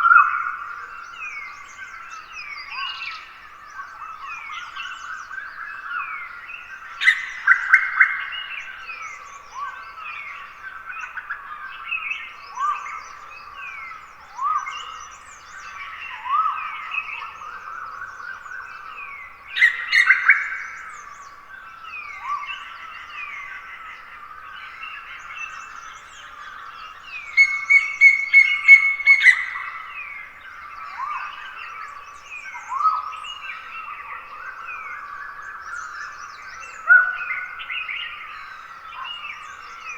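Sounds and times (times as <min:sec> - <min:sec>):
forest birds chirping: 0:00.0 - 0:39.9.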